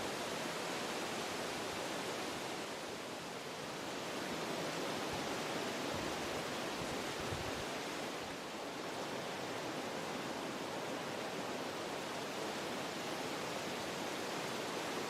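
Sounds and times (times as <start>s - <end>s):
wind blowing through trees: 0.0s - 15.0s.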